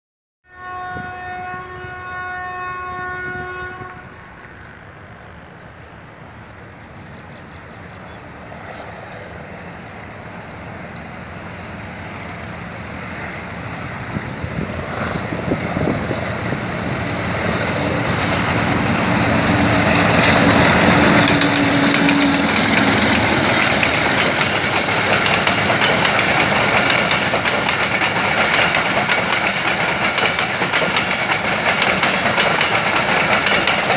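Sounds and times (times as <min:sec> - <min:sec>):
locomotive horn blast: 0:00.5 - 0:04.2
diesel locomotive engine: 0:00.5 - 0:33.9
train wheels clickety-clack: 0:14.9 - 0:33.9.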